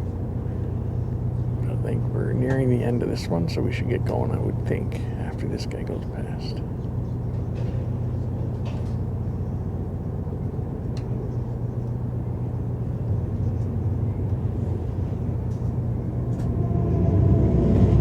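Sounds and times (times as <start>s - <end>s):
passing train rumble: 12.0s - 18.0s.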